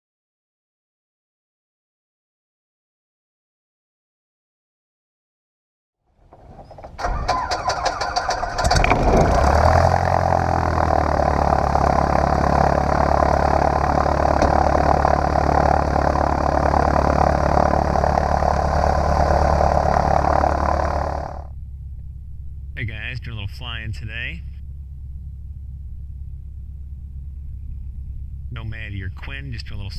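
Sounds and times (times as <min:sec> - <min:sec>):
starter cranking engine: 0:06.3 - 0:22.8
aircraft engine running: 0:06.3 - 0:29.9.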